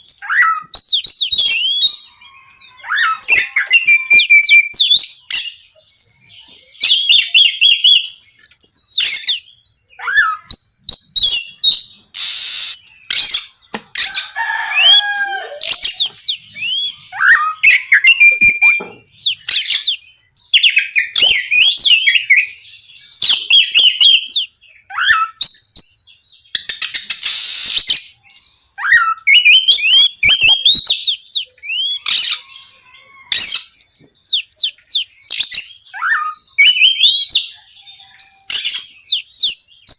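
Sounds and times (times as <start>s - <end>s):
bird singing whistles and trills: 0.0s - 14.2s, 14.8s - 39.9s
harsh rasping bird notes: 11.8s - 19.6s, 26.9s - 28.2s.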